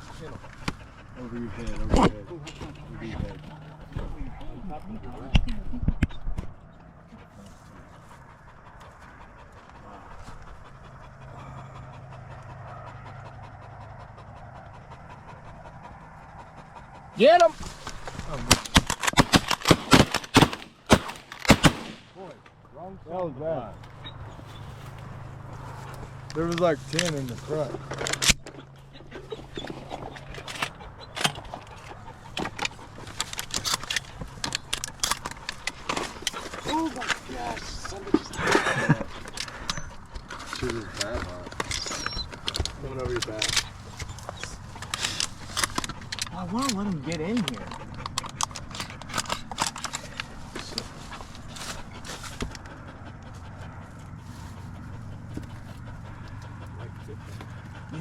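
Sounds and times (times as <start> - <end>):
dog panting: 0.0 - 19.7, 22.4 - 58.0
shotgun blast: 19.2 - 22.2.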